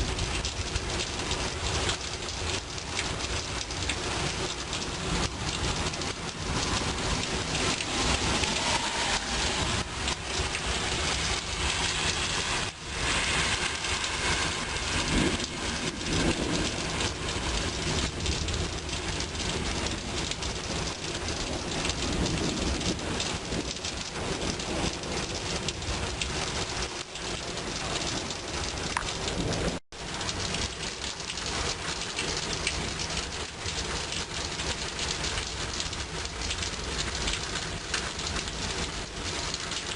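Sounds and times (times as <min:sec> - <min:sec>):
thunder rumbling: 0:00.0 - 0:31.6
heavy rain falling: 0:00.0 - 0:39.9.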